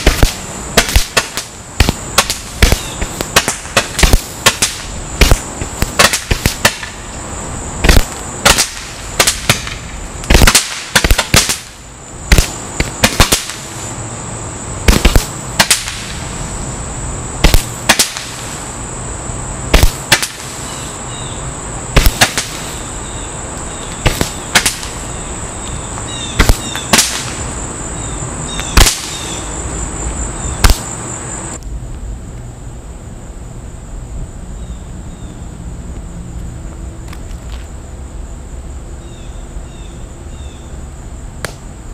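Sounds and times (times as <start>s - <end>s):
high firework hiss: 0.0s - 32.4s.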